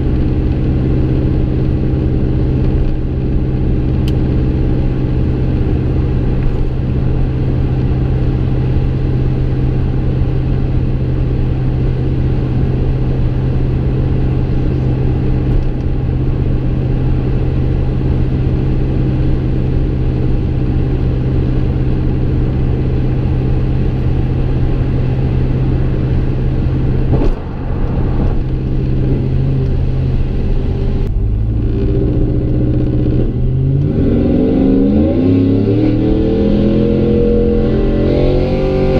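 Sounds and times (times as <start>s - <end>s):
engine exhaust drone: 0.0s - 38.9s.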